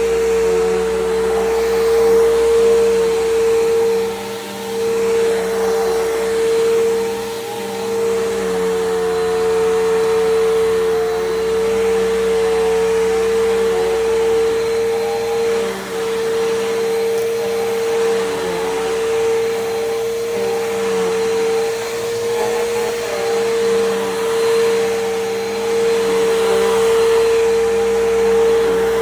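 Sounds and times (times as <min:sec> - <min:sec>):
vacuum cleaner motor whine: 0:00.0 - 0:29.0.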